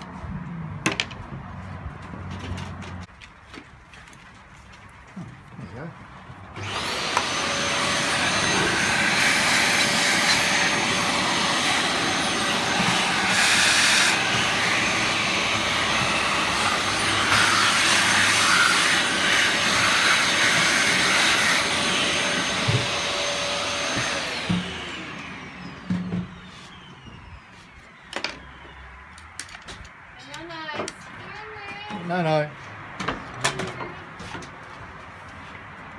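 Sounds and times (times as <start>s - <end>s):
vacuum motor whining: 6.6s - 27.4s.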